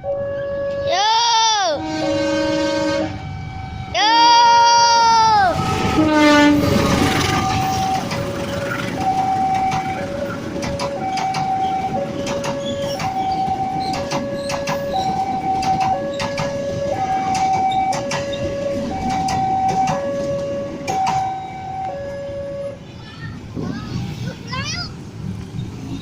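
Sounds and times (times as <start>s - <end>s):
two-tone crossing alarm: 0.0s - 1.0s, 1.8s - 22.8s
train wheels clacking over rail joints: 5.6s - 21.5s.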